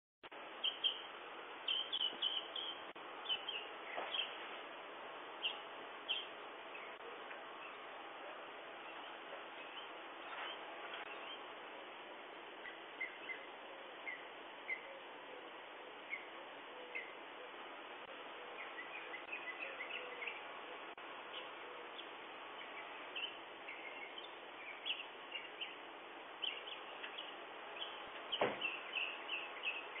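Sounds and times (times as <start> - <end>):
birds chirping: 0.5 - 30.0.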